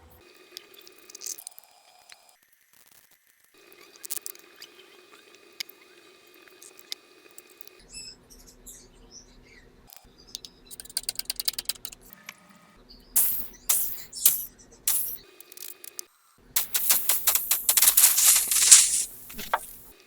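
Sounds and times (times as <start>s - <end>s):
tools clicking and scratching: 10.8s - 12.0s, 13.2s - 15.9s, 16.6s - 19.9s.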